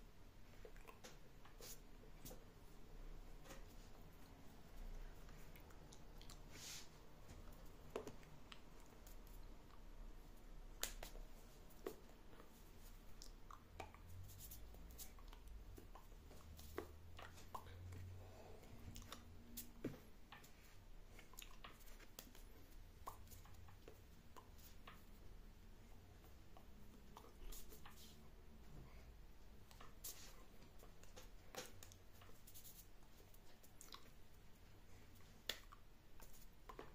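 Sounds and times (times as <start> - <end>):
faint clicks and light taps: 7.2 - 36.9.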